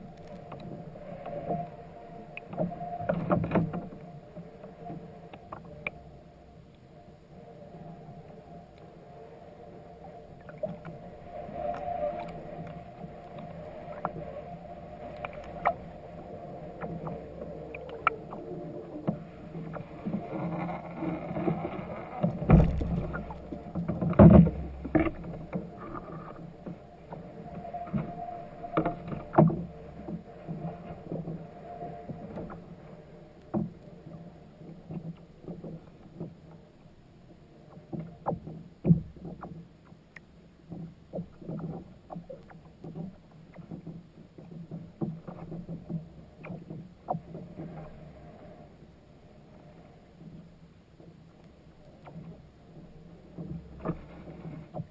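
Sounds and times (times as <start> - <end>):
water against a hull: 0.0 - 54.9
loud thumps: 22.4 - 23.4.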